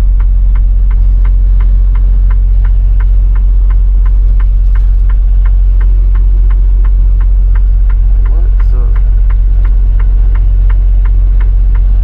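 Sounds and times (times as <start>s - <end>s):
diesel engine hum: 0.0s - 12.0s
turn signal ticking: 0.0s - 12.0s.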